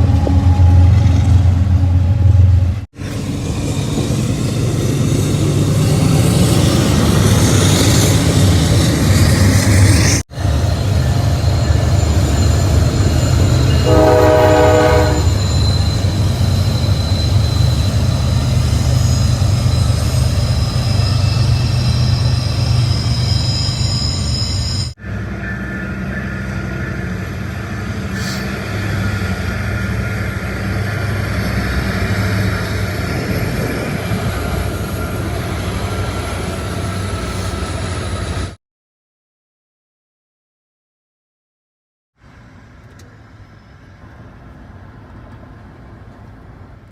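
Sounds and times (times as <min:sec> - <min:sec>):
train rumbling past: 0:00.0 - 0:38.6, 0:42.2 - 0:46.9
high wheel squeal: 0:05.8 - 0:38.6
train horn blast: 0:13.7 - 0:15.5.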